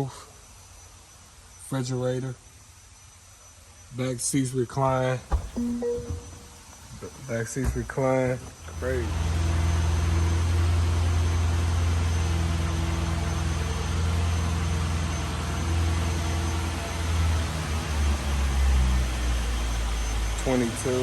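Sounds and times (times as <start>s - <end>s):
low mechanical hum: 4.8s - 21.0s.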